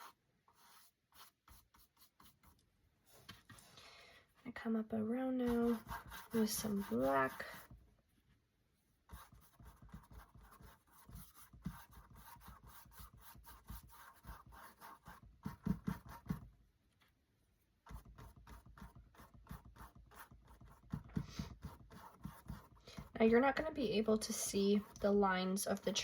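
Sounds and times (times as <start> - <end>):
paintbrush scratchy rubbing: 0.0 - 2.6, 5.4 - 7.8, 17.9 - 26.0.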